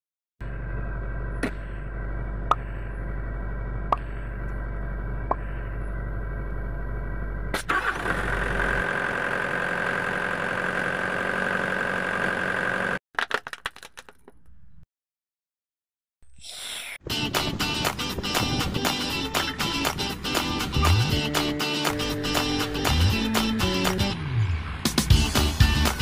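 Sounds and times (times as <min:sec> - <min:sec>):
excavator diesel engine running: 0:00.4 - 0:13.0.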